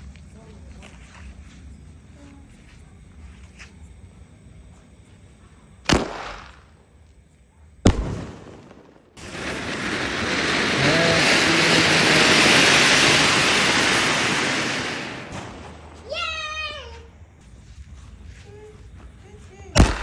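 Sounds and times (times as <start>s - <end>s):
firecracker bangs: 5.9s - 6.8s, 7.8s - 16.9s, 19.8s - 20.0s
loud steady hiss: 7.8s - 18.4s.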